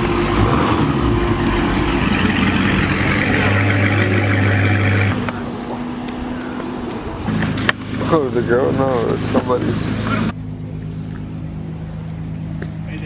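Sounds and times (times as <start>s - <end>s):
car engine idling: 0.0s - 10.4s
deeper hum: 0.0s - 12.5s.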